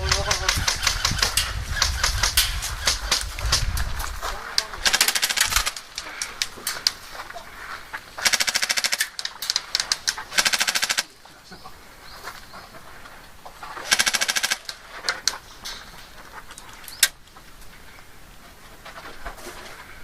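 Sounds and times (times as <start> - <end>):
airsoft guns firing bursts: 0.0 - 3.7, 4.7 - 7.0, 8.2 - 11.2, 13.8 - 15.3.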